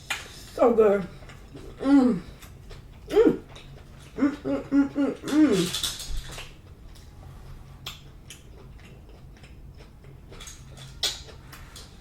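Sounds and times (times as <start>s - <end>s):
person chewing: 0.0s - 12.0s
wet mouth clicks and smacks: 7.8s - 9.5s, 10.4s - 11.4s.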